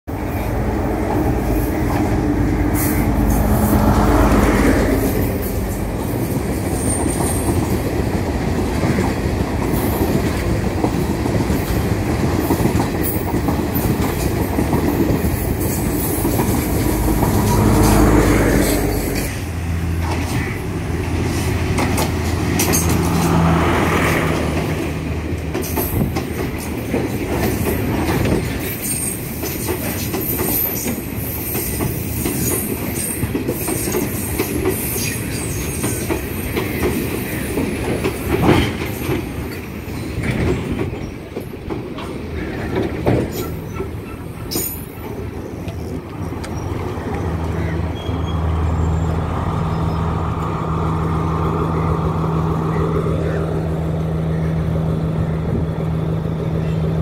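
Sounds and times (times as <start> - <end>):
train wheels clattering over joints: 1.1 - 23.6, 24.2 - 48.4
wheel squeal: 28.6 - 29.3, 47.9 - 50.0
diesel engine drone: 46.0 - 57.0.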